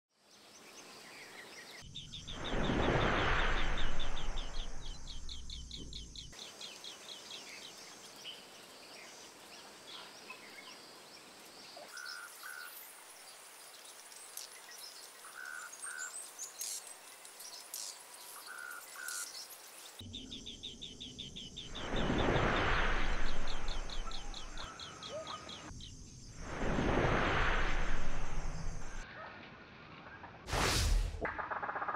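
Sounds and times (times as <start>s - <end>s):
birds chirping: 0.3s - 26.4s
loud whooshing: 2.3s - 5.4s, 26.4s - 29.0s.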